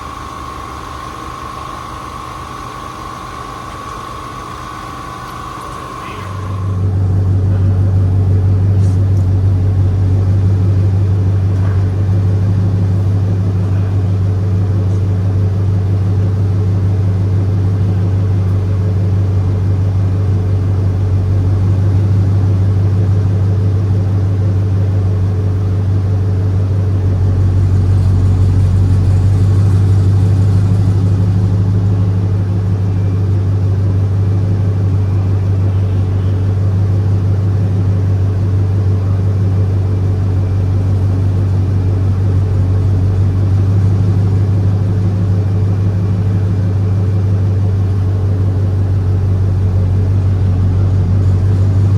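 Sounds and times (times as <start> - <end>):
deep engine exhaust drone: 0.0 - 51.9.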